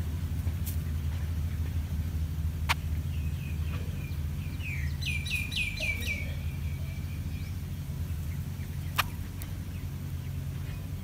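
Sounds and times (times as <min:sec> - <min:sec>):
low rumble: 0:00.0 - 0:11.0
faint bird call notes: 0:02.6 - 0:11.0
bird chirping falling notes: 0:02.7 - 0:11.0.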